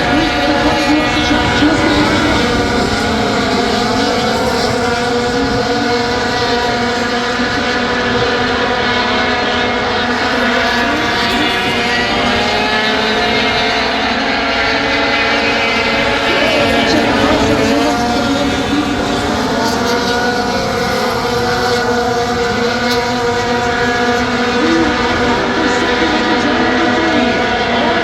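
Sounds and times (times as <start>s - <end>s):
racing truck engines: 0.0s - 28.0s.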